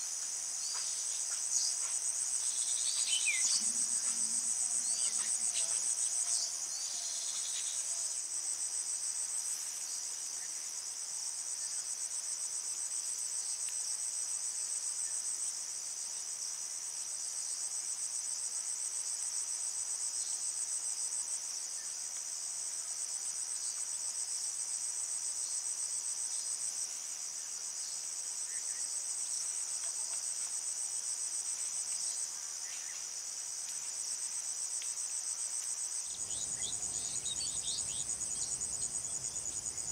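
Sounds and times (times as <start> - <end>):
insects trilling: 2.4 - 8.3, 35.6 - 39.9.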